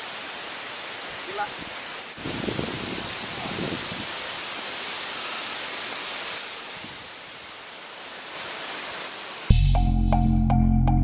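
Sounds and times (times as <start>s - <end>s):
waterfall roaring: 0.0s - 9.5s.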